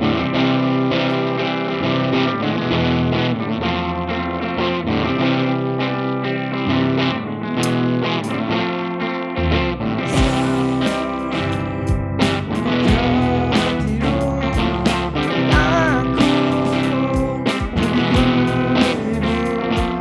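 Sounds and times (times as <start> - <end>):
loud lead electric guitar: 0.0 - 20.0
live rock band playing: 10.1 - 20.0.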